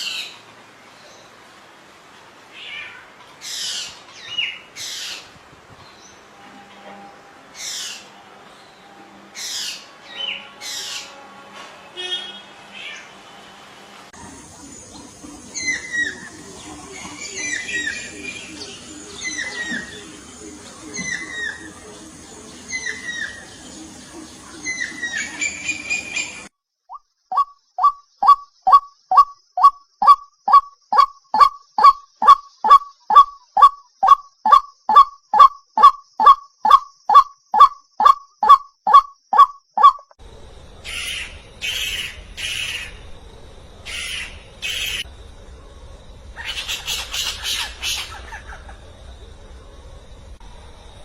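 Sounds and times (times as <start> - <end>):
low steady hum: 5.8 - 26.5, 40.2 - 51.0
bird harsh squawking: 40.8 - 43.0, 43.8 - 45.1, 46.4 - 48.7.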